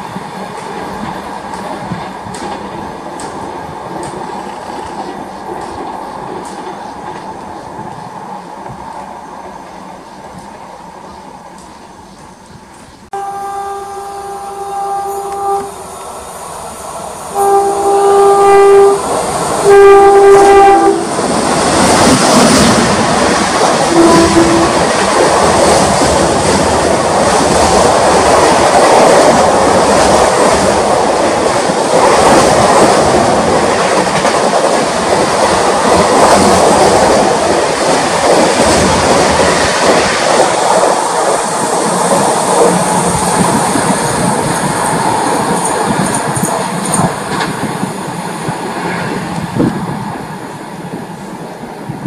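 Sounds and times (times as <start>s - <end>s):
train wheels rushing and clattering: 0.0s - 13.1s, 18.7s - 52.0s
locomotive horn blasts: 13.1s - 15.8s, 17.3s - 21.2s, 23.9s - 24.9s.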